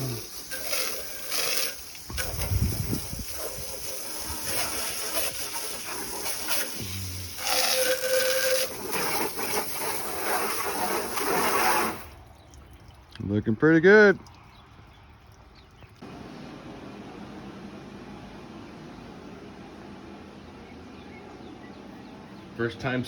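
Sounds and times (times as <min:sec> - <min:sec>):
water spraying onto a car: 0:00.0 - 0:12.9.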